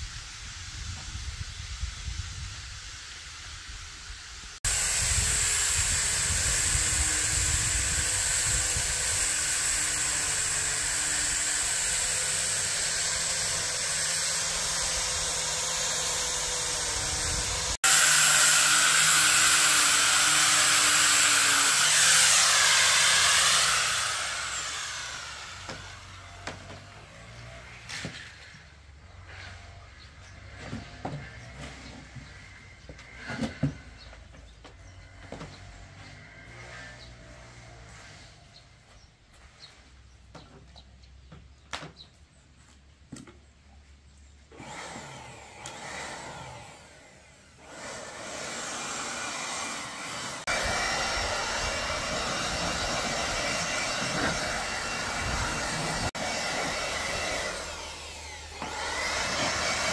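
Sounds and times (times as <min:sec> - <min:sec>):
machine whine winding down: 0:11.7 - 0:26.9, 0:44.6 - 0:59.9
hissing machine noise: 0:45.5 - 0:59.9.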